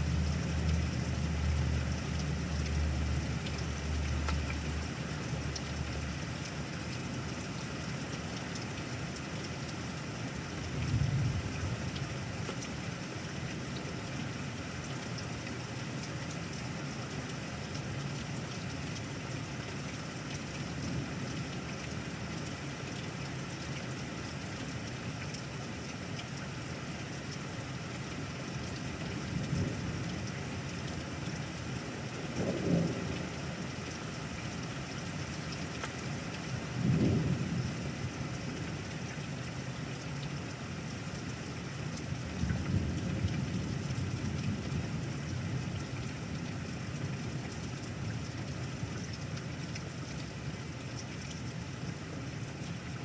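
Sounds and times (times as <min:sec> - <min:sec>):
steady rain: 0:00.0 - 0:53.0
thunder rumbles: 0:32.3 - 0:33.6, 0:36.8 - 0:37.9.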